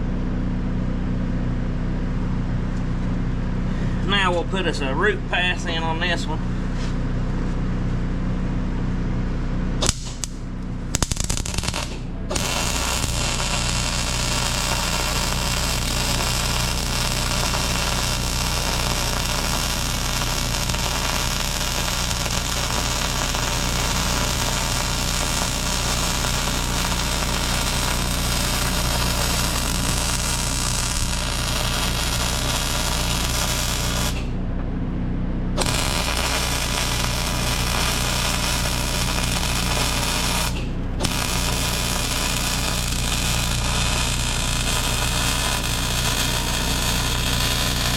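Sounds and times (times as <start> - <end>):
steady low hum: 0.0 - 47.9
arc welding crackle: 9.8 - 34.4, 35.6 - 47.9.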